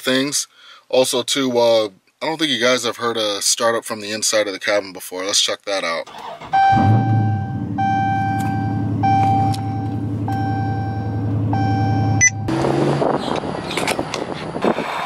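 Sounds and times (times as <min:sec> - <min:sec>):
car engine starting and idling: 0:06.1 - 0:15.0
dashboard warning chime: 0:06.6 - 0:12.5
wind noise: 0:12.5 - 0:15.0.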